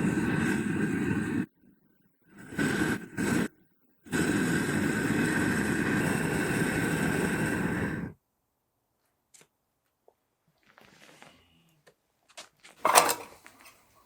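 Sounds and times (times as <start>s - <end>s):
gas burner rushing: 0.0s - 1.5s, 2.2s - 8.2s, 12.8s - 13.8s.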